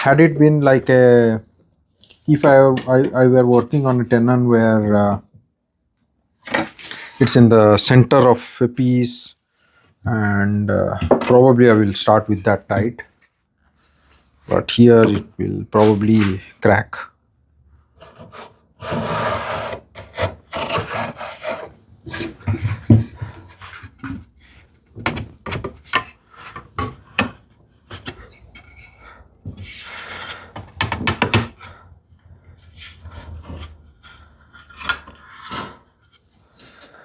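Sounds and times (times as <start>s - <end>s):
hand tools shaving wood: 18.0s - 36.8s.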